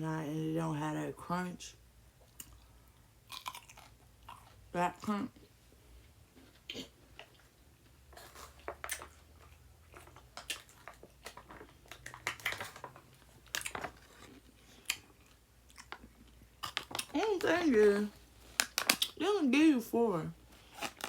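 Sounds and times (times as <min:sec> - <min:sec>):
person chewing crunchy pickle: 0:02.2 - 0:04.7, 0:06.5 - 0:17.2, 0:20.6 - 0:21.0.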